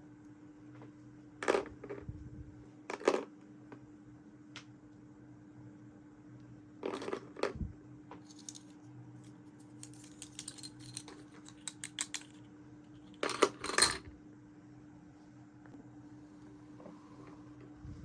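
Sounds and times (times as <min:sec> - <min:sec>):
plastic toy pieces clicking: 0:09.8 - 0:12.3.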